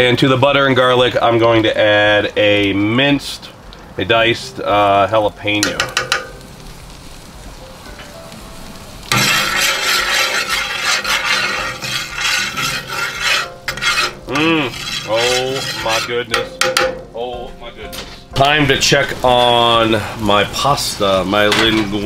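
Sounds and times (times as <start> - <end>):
food sizzling in a pan: 0.0 - 17.2, 18.0 - 22.0
metal spoon stirring: 9.1 - 17.0.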